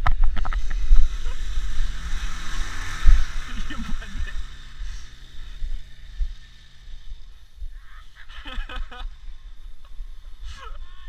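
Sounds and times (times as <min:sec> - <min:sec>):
motorcycle engine droning: 0:00.0 - 0:11.0
faint calls: 0:07.6 - 0:11.0.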